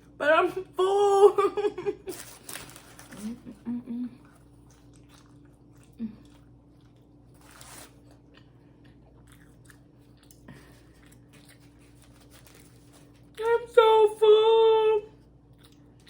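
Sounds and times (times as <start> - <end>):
faint steady hum: 0.0 - 16.0
person chewing: 4.2 - 13.4, 15.4 - 16.0.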